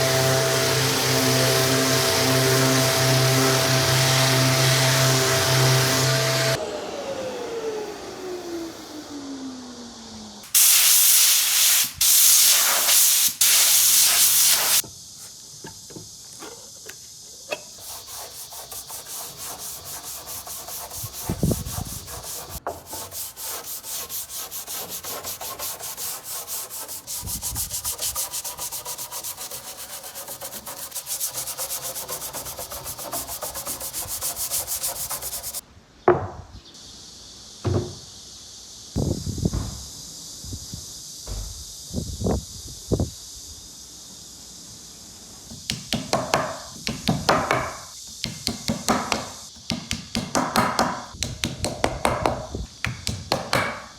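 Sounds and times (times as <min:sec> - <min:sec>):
sandpaper rubbing on wood: 0:00.0 - 0:06.6, 0:10.6 - 0:14.8, 0:17.7 - 0:35.6.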